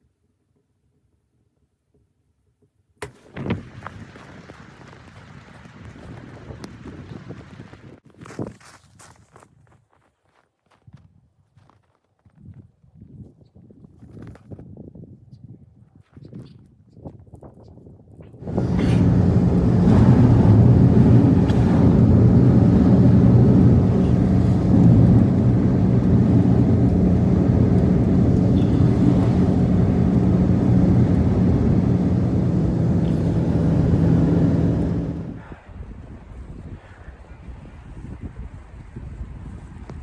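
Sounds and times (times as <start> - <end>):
motor humming: 18.4 - 35.4.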